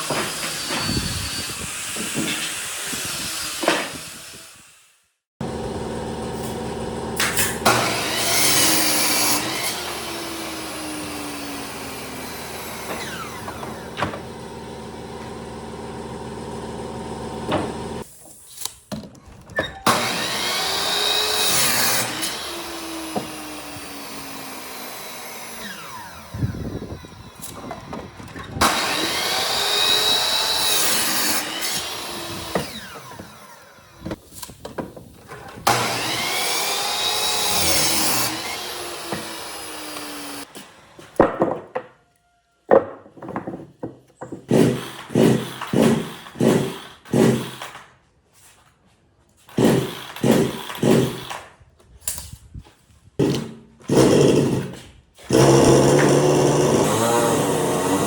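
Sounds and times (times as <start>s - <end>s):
power tool working wood: 5.4s - 18.0s, 19.9s - 34.2s, 35.6s - 40.6s, 53.2s - 58.0s.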